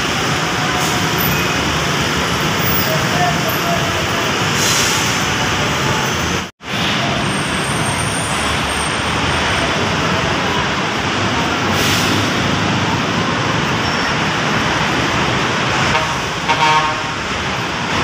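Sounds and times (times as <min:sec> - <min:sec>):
loud road traffic: 0:00.0 - 0:18.0.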